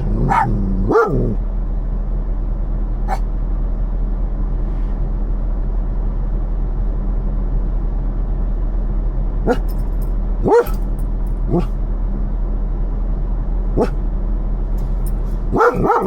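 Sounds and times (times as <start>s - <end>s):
dog barking: 0.0s - 1.4s, 3.1s - 3.3s, 9.4s - 9.8s, 10.4s - 11.8s, 13.8s - 14.0s, 15.5s - 16.0s
diesel truck engine idling: 0.0s - 16.0s.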